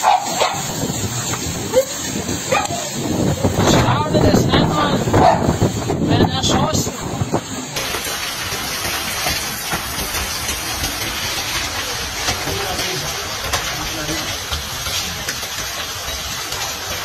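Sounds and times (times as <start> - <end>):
heavy rain and hail: 0.0 - 17.0
sharp ticks of hail impacts: 7.8 - 17.0.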